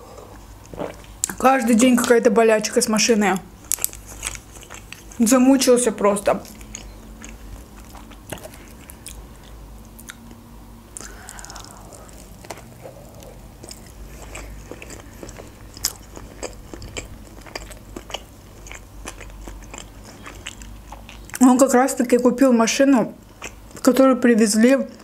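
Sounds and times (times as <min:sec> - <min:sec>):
person chewing food: 0:03.6 - 0:05.2, 0:06.4 - 0:21.4, 0:23.2 - 0:23.8.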